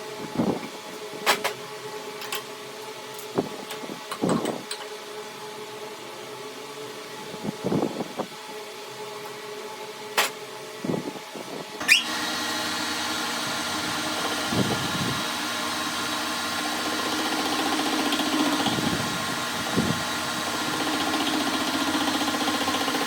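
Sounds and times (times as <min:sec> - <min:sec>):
electric motor whine and hum: 0:10.8 - 0:23.0.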